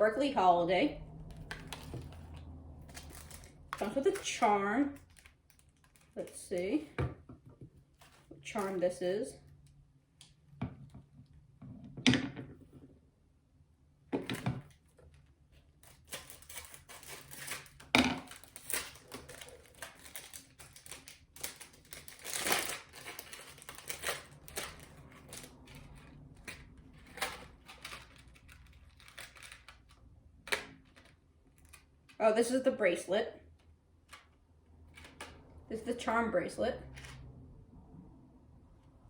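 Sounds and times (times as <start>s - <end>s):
packaging crinkling and rustling: 1.3s - 6.4s, 7.8s - 8.8s, 14.3s - 32.2s.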